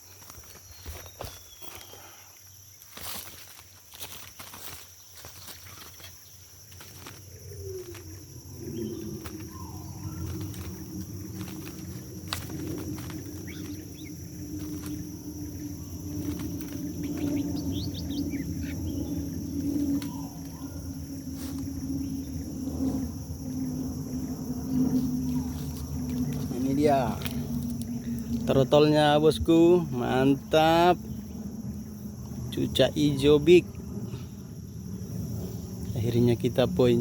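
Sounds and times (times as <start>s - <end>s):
high insect drone: 0.0s - 37.0s
low steady hum: 2.7s - 37.0s
bird chirps and calls: 7.0s - 23.0s.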